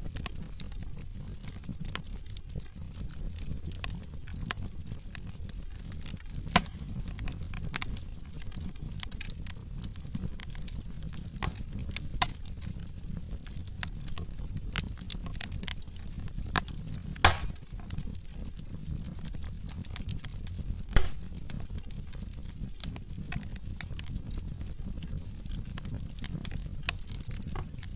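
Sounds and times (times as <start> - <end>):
low rumble of flames: 0.0 - 27.9
wood fire crackling and popping: 0.0 - 27.9.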